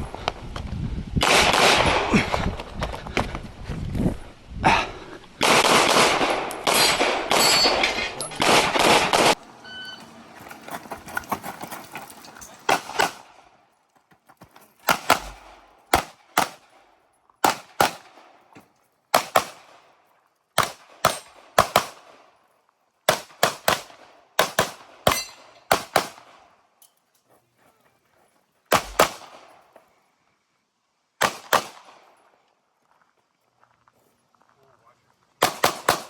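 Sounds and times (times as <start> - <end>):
pistol shots with echo: 5.4 - 7.8, 14.9 - 16.8, 17.4 - 18.3, 19.1 - 19.8, 20.6 - 22.2, 23.1 - 26.4, 28.7 - 29.5, 31.2 - 32.1, 35.4 - 36.0.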